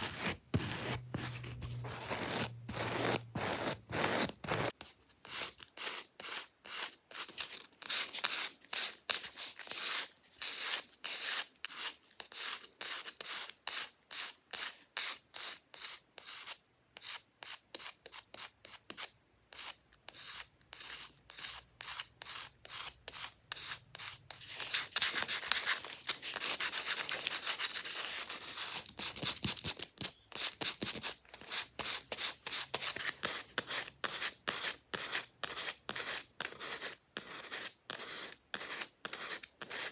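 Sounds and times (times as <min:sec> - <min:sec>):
fingernails scratching a surface: 0:00.0 - 0:04.8.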